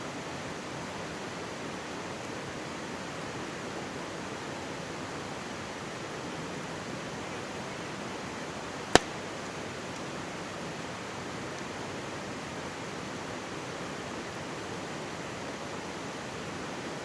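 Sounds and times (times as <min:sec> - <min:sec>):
campfire wood popping: 0:09.0 - 0:09.2
mountain stream rushing: 0:09.7 - 0:17.0.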